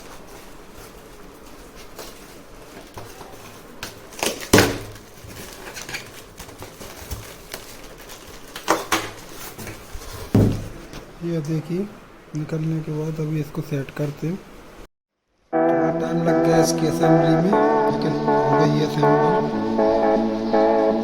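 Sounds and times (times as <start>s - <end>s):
parts and packaging clattering: 0.0s - 11.0s.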